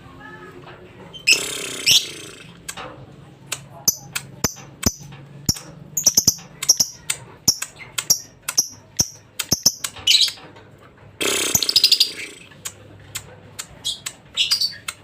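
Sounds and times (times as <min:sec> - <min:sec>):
lovebird chirping and chattering: 0:01.1 - 0:02.4, 0:03.8 - 0:10.4, 0:11.5 - 0:12.4, 0:13.8 - 0:15.0.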